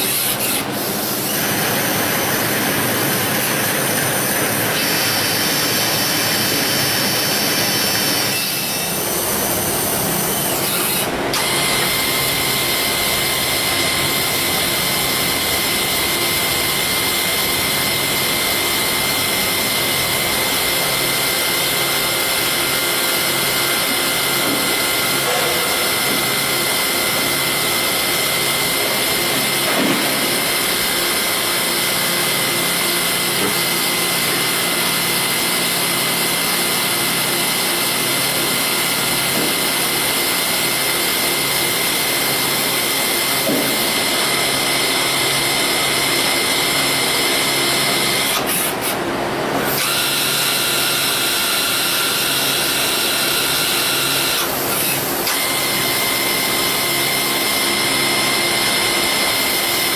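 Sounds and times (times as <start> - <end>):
lathe machining whine: 0.0 - 59.9.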